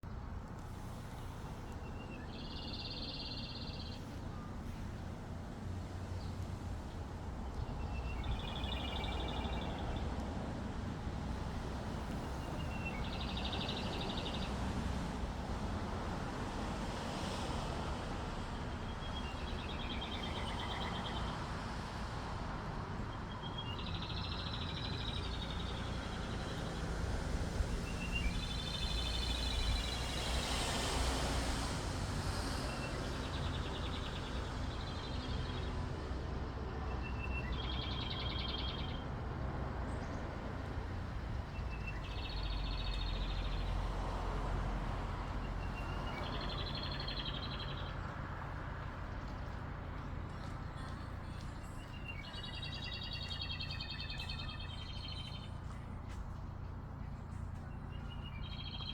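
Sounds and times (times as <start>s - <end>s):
songbird trilling song: 1.7s - 4.5s, 7.5s - 10.1s, 12.3s - 14.6s, 19.1s - 21.3s, 36.9s - 39.0s, 41.5s - 43.7s, 45.4s - 48.2s, 50.4s - 55.9s, 57.1s - 58.9s.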